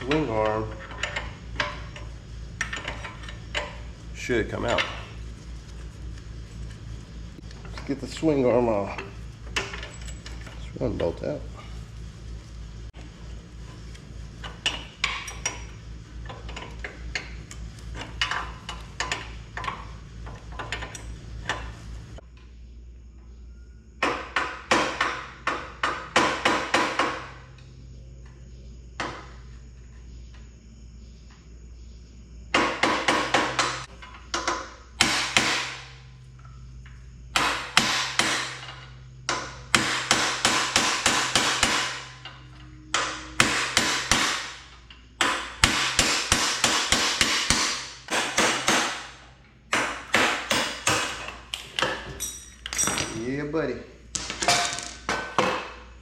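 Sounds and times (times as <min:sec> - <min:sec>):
low hum with clicking: 0:00.0 - 0:56.0.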